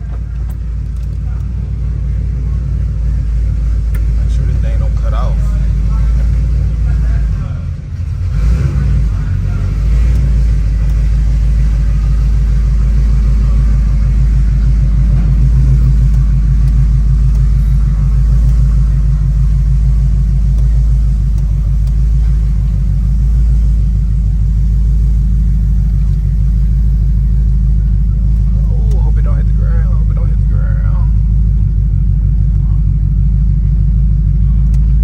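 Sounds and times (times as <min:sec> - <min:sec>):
car engine exhaust rumble: 0:00.0 - 0:35.0.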